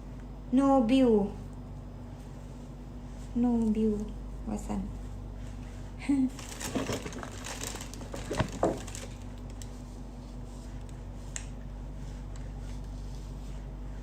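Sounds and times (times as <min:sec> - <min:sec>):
low electrical hum: 0:00.0 - 0:14.0
crinkling handling noises: 0:05.2 - 0:13.4.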